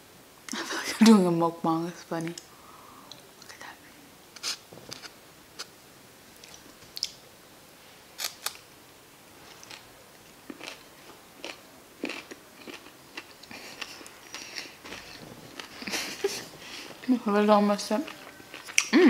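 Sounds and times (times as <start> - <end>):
person chewing food: 9.4 - 17.0, 18.1 - 18.9.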